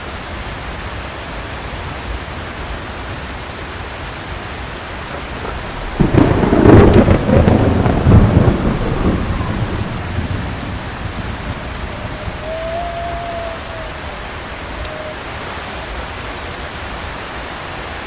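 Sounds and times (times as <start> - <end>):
heavy rain: 0.0 - 18.0
thunder clap and rumble: 2.1 - 14.8.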